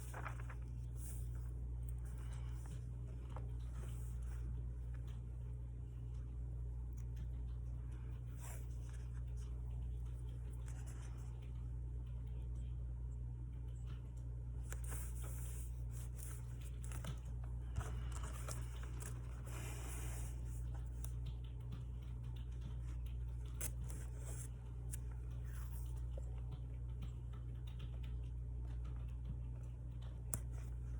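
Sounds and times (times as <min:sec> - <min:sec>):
paper and tape rustling: 0:00.0 - 0:04.6, 0:14.7 - 0:21.2
low electrical hum: 0:00.0 - 0:30.9.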